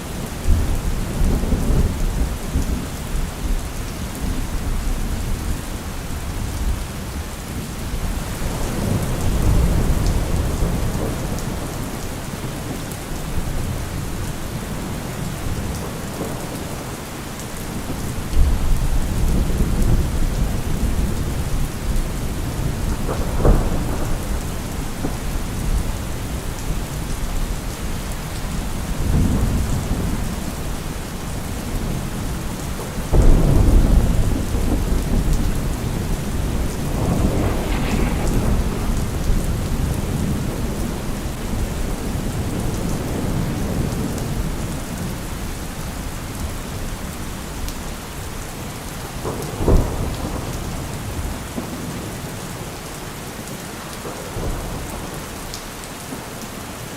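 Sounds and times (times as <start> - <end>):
heavy rain pouring: 0.0 - 56.9
deep low rumbles: 36.8 - 40.5.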